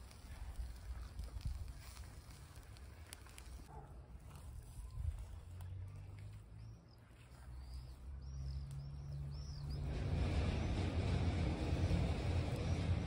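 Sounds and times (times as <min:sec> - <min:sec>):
bird chirping: 0:06.6 - 0:10.5
rushing noise: 0:09.7 - 0:13.0.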